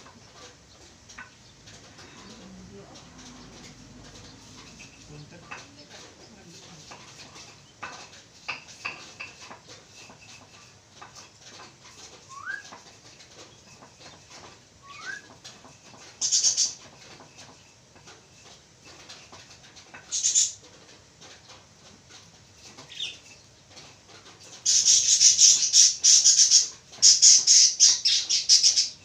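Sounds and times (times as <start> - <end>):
birds clicking and chattering: 0.0 - 29.0
bird rising whistles: 12.3 - 12.6, 14.8 - 15.3.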